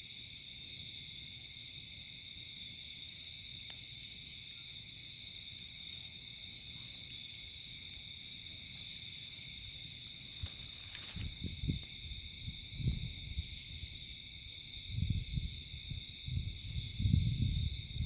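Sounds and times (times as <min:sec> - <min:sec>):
campfire crackle: 0:00.0 - 0:18.0
night insects chirping: 0:00.0 - 0:18.0.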